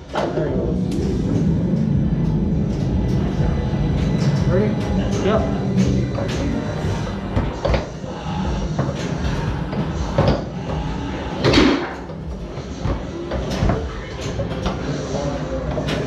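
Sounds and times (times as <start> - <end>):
foosball rods clacking: 4.0 - 8.0.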